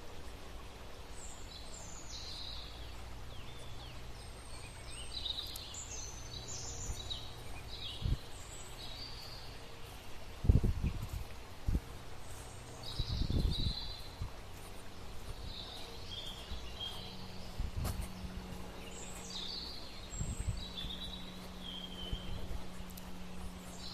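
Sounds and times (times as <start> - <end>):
birds chirping: 0.0 - 23.9
faint steady low hum: 0.0 - 23.9.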